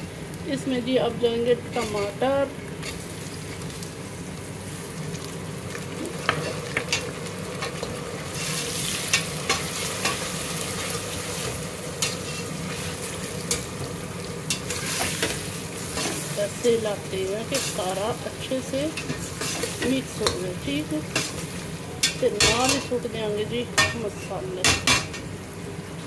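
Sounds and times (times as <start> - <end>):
tomatoes sizzling in hot oil: 0.0 - 26.0
metal spatula scraping a pot: 1.7 - 2.2.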